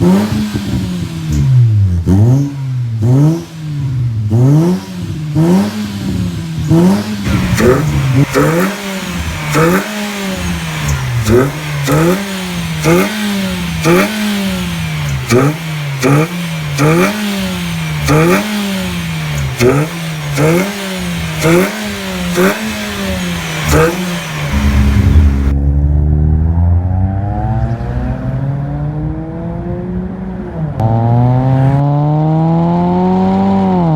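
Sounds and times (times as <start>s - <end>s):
exhaust crack: 0.0s - 26.5s
car engine revving: 0.0s - 33.9s.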